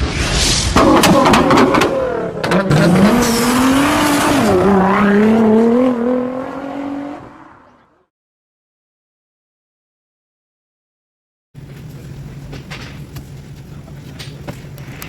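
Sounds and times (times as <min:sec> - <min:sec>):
car engine revving: 0:00.8 - 0:08.0.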